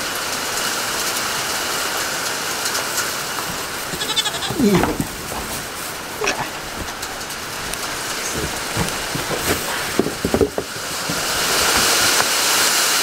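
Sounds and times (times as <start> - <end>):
rain hissing: 0.0 - 13.0
short knocks: 3.4 - 12.2.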